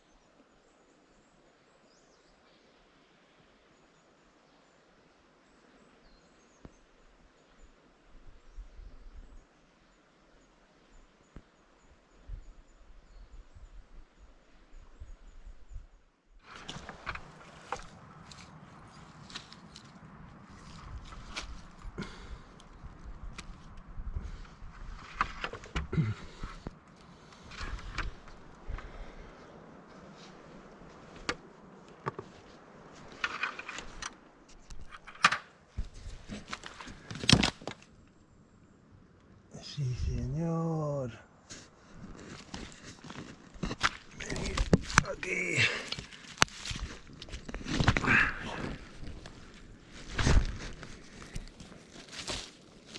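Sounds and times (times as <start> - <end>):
wind rumbling on microphone: 12.2 - 35.1
footsteps through wet undergrowth: 16.4 - 24.4, 41.6 - 52.9
clicks crackles and rustles: 16.4 - 29.1, 30.2 - 38.2, 41.4 - 52.9.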